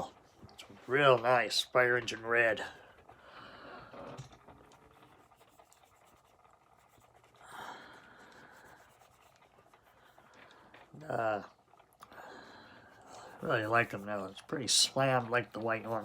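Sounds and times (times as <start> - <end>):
soft breath-like rush: 2.6 - 4.2, 6.9 - 14.4
toy car scratching and rubbing: 4.0 - 7.5, 8.3 - 10.0, 13.1 - 16.0.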